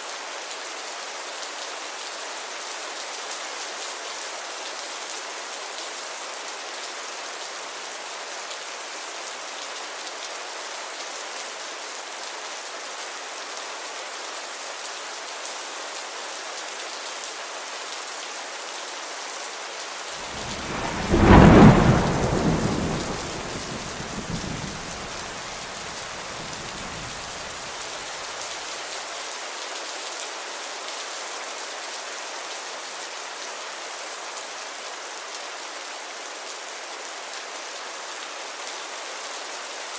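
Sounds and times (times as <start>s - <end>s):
steady rainfall: 0.0s - 39.9s
thunder rumbling: 20.2s - 27.7s.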